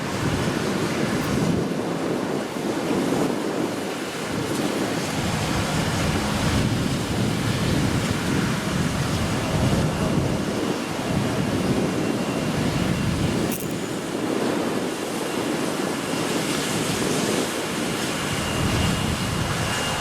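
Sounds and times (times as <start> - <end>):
strong wind buffeting microphone: 0.0 - 20.0.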